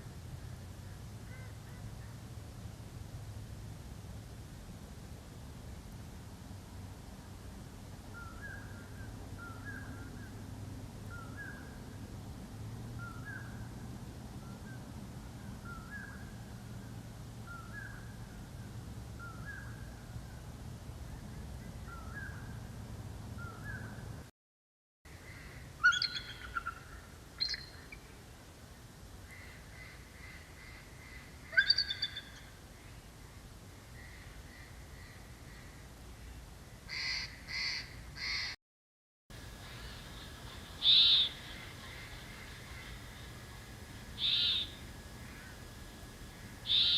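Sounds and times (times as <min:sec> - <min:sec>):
faint bird chirps: 0:25.2 - 0:28.2, 0:29.3 - 0:33.0, 0:39.4 - 0:46.9
small bird calling: 0:25.3 - 0:28.1, 0:29.3 - 0:32.5, 0:39.4 - 0:46.9
crow-like bird calls: 0:36.9 - 0:38.6, 0:39.6 - 0:43.3, 0:44.2 - 0:45.6, 0:46.3 - 0:46.9.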